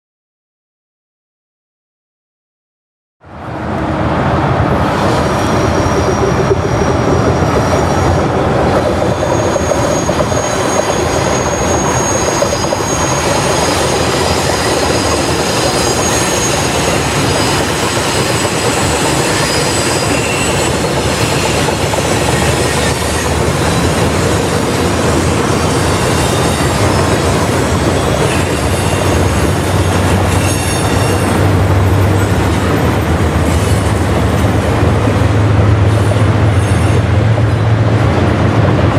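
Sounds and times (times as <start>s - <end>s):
freight train cars rolling: 3.6s - 38.9s
high-pitched wheel squeals: 5.0s - 32.2s, 35.9s - 37.2s.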